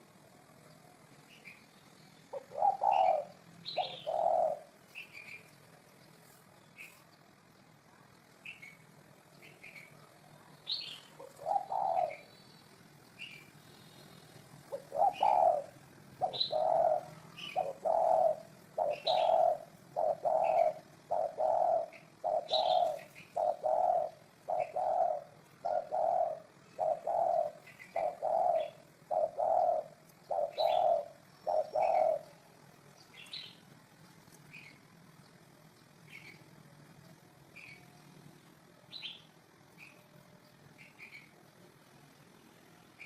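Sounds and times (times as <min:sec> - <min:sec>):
small birds chirping: 0:00.0 - 0:43.0
dove cooing: 0:02.3 - 0:05.8, 0:08.5 - 0:33.6.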